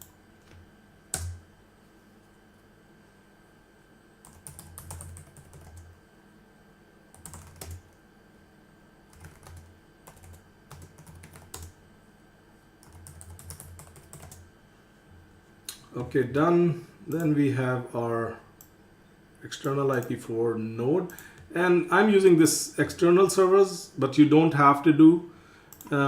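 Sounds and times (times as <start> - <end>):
typing on a computer keyboard: 1.1 - 1.4, 4.2 - 6.0, 7.1 - 8.0, 9.1 - 11.8, 12.8 - 14.4.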